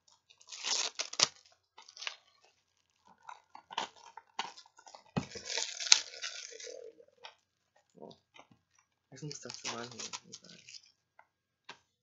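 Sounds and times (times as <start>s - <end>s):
plastic wrap crinkling and tearing: 0.0s - 11.0s.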